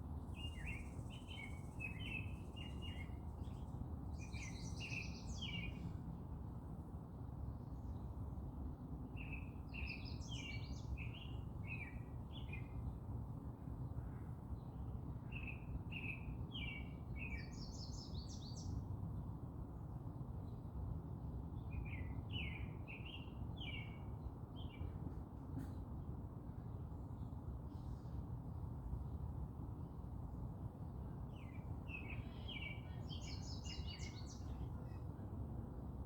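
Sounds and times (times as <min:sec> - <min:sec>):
songbird chirping: 0:00.3 - 0:05.8, 0:31.3 - 0:35.1.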